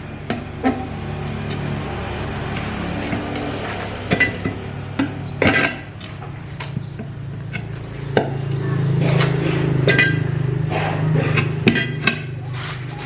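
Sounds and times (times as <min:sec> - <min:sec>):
low machine hum: 0:00.0 - 0:12.4
metal tools clinking: 0:00.9 - 0:04.8.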